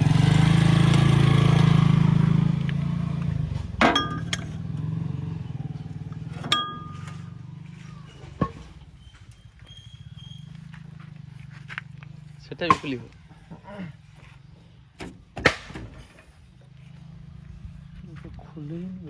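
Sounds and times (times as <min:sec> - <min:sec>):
tractor diesel engine throbbing: 0:00.0 - 0:18.7
sharp metallic clinks: 0:03.8 - 0:04.9, 0:06.3 - 0:10.4.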